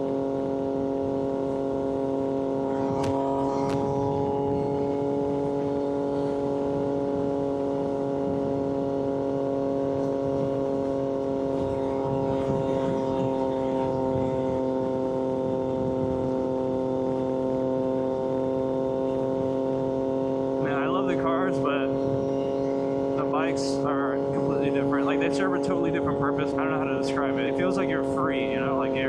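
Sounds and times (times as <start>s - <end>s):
motorcycle engine cruising: 0.0s - 29.0s.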